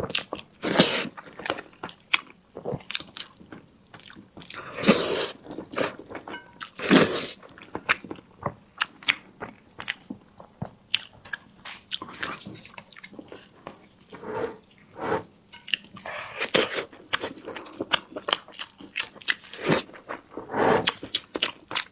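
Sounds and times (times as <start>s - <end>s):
person chewing with mouth clicks: 10.9s - 21.9s.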